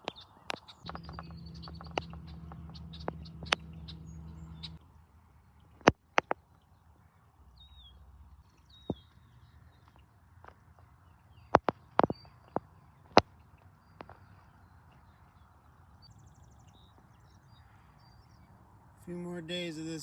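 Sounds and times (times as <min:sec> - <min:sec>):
sharp clicks: 0:00.0 - 0:04.8, 0:11.5 - 0:13.3
small bird chirping: 0:00.0 - 0:06.8, 0:07.6 - 0:10.1, 0:10.8 - 0:18.5
steady low hum: 0:00.8 - 0:05.8.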